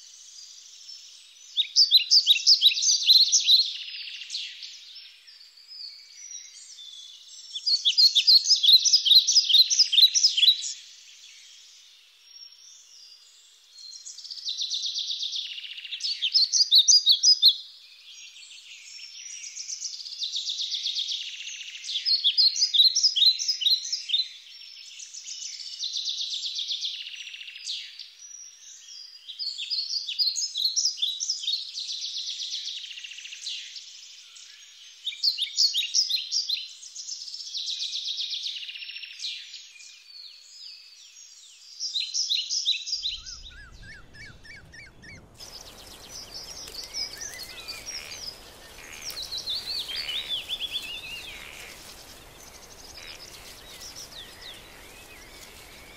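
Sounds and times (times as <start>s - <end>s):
birds singing chirps and trills: 18.2s - 55.9s
hissy outdoor ambience: 42.9s - 55.9s.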